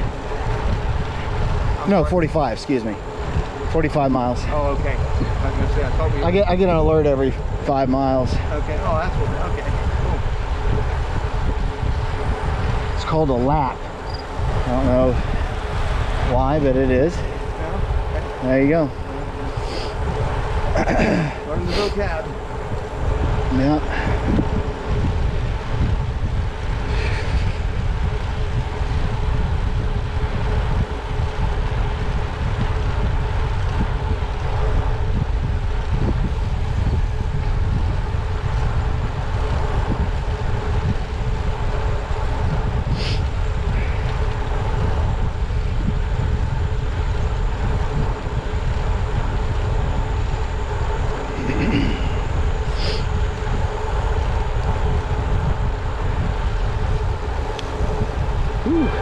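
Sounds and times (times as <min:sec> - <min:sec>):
wind buffeting microphone: 0:00.0 - 0:59.0
faint even hum: 0:36.6 - 0:59.0.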